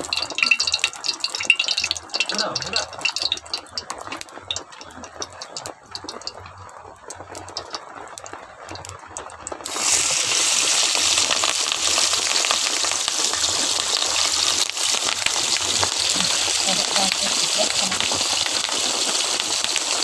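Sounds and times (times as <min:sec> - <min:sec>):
food sizzling in hot oil: 0:00.0 - 0:20.0.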